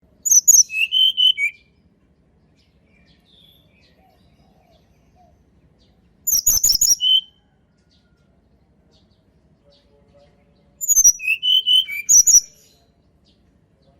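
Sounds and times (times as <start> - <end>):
bird singing: 0.2 - 13.9.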